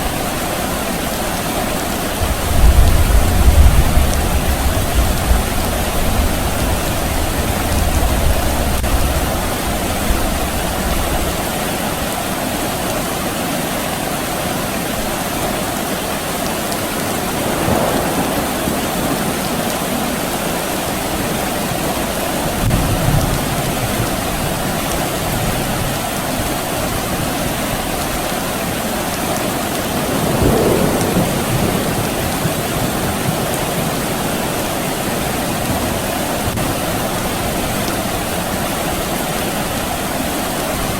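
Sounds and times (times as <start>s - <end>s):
steady rain falling: 0.0s - 40.9s
distant thunder rumbling: 2.0s - 11.3s, 16.9s - 26.4s, 29.8s - 39.3s.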